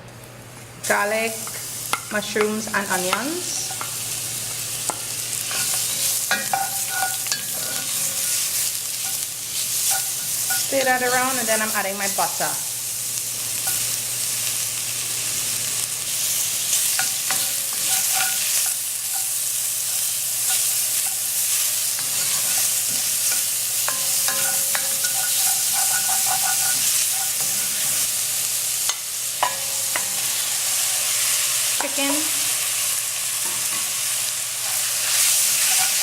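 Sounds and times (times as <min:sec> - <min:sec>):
vegetables sizzling in a pan: 0:00.0 - 0:36.0
spoon scraping and clinking pan: 0:04.9 - 0:09.2, 0:16.9 - 0:28.1, 0:28.9 - 0:30.4, 0:34.7 - 0:36.0.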